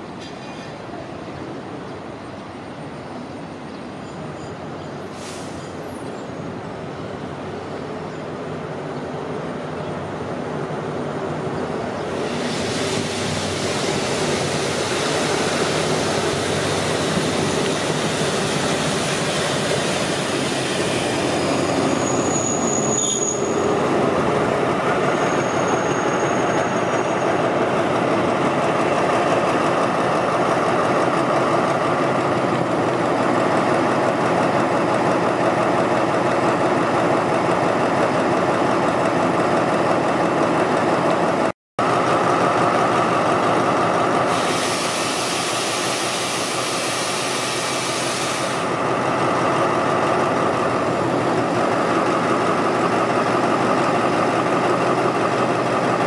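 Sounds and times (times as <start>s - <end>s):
train wheels rumbling on rails: 8.5s - 56.0s
high-pitched wheel squeals: 21.3s - 23.8s, 25.0s - 27.4s.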